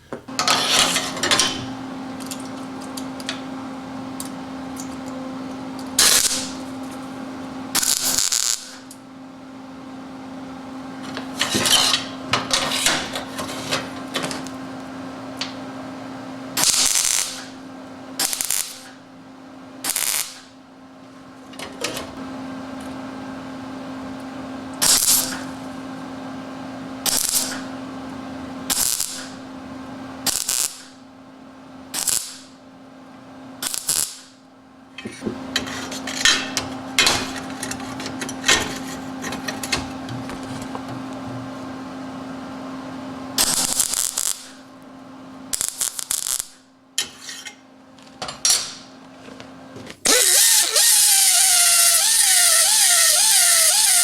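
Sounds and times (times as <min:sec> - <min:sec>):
shop machine humming: 0:00.0 - 0:54.0
short harsh grinding bursts: 0:50.1 - 0:54.0.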